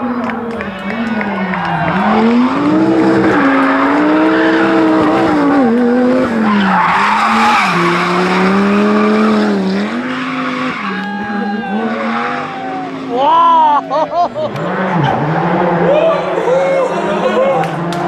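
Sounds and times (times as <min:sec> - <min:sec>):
tyres sliding: 0:00.0 - 0:11.1
rally car engine at high revs: 0:00.0 - 0:18.0.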